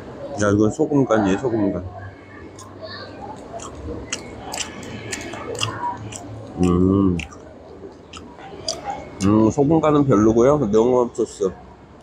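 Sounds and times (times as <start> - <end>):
man chewing: 2.5 - 9.4
wet mouth clicks and smacks: 3.4 - 7.5, 8.1 - 9.3.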